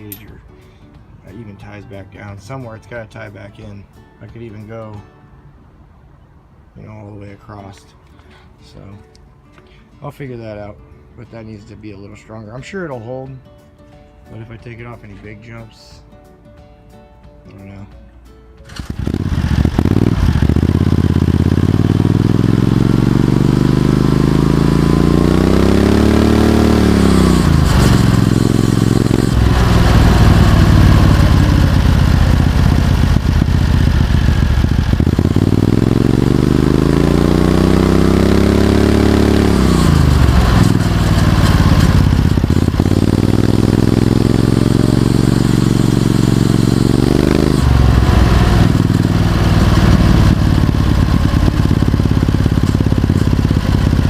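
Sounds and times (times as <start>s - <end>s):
go-kart engine revving: 18.7s - 54.0s.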